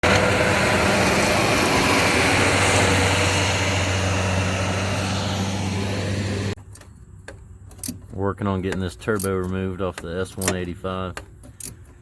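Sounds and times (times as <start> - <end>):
diesel engine running: 0.0 - 9.0.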